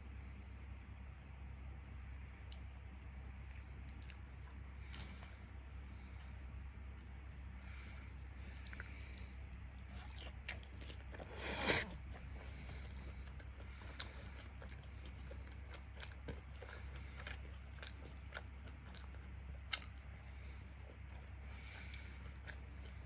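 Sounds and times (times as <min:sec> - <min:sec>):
person chewing and biting: 0:03.4 - 0:05.6, 0:07.7 - 0:23.0.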